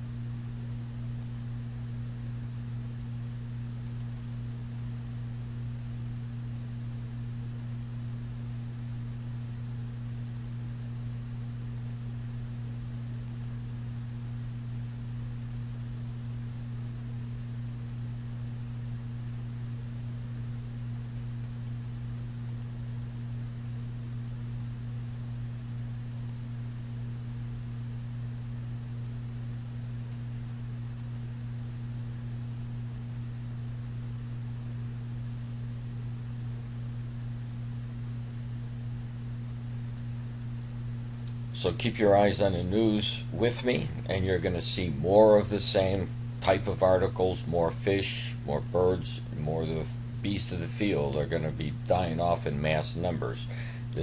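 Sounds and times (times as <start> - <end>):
low electrical hum: 0.0 - 54.0
constant hiss: 39.9 - 54.0.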